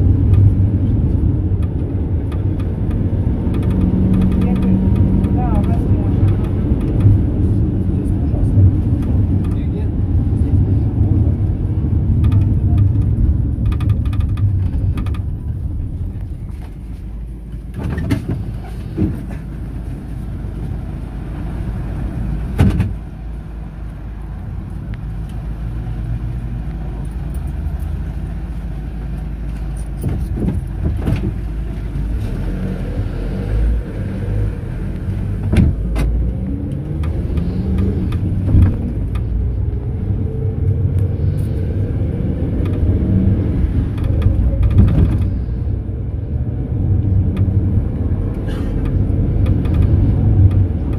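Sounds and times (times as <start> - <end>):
knocks and rattles: 0.0 - 7.4, 12.0 - 16.8, 29.6 - 31.9
minibus engine and road rumble: 0.0 - 50.9.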